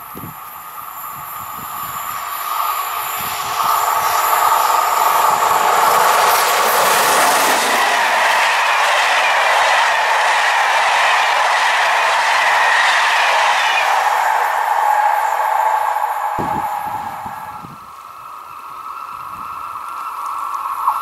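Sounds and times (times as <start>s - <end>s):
passenger train passing: 0.0s - 21.0s
wheels ringing on rails: 0.0s - 21.0s.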